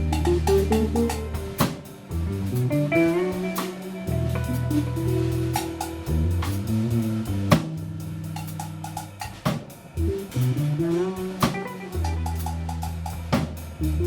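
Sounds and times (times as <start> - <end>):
band music: 0.0 - 14.0
sharp drum hits: 0.1 - 1.8.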